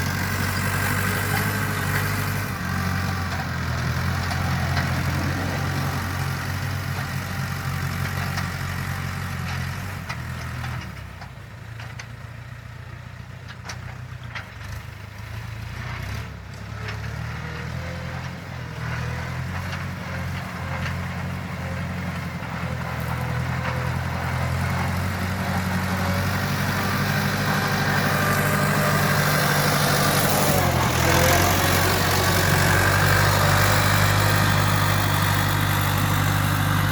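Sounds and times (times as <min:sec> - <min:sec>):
tractor engine running: 0:00.0 - 0:15.8, 0:16.5 - 0:36.9.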